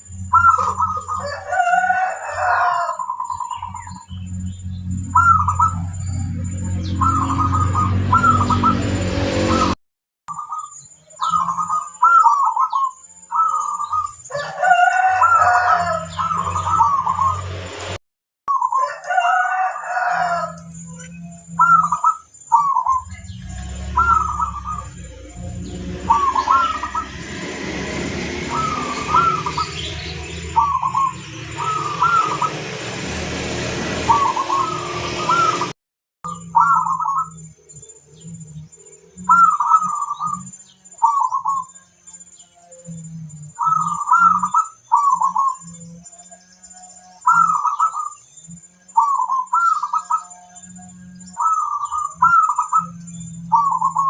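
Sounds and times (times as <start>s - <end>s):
doves cooing: 0.0s - 17.6s, 18.5s - 41.8s, 43.0s - 46.1s, 47.2s - 48.2s, 48.9s - 54.0s
rooster crowing: 0.4s - 4.1s, 14.3s - 17.5s, 18.6s - 22.0s, 22.9s - 35.8s
low hum: 3.3s - 9.8s, 20.4s - 40.9s.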